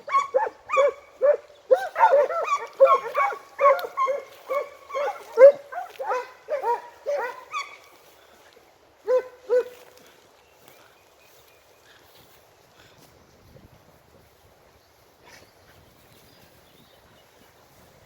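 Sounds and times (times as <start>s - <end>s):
hounds baying: 0.0s - 8.2s, 9.0s - 10.0s.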